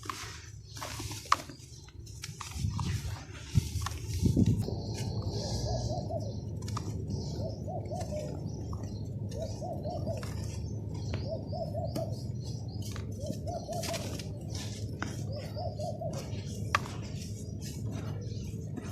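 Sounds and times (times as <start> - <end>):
steady low rumble: 1.7 - 18.9
bird cooing: 4.7 - 18.9.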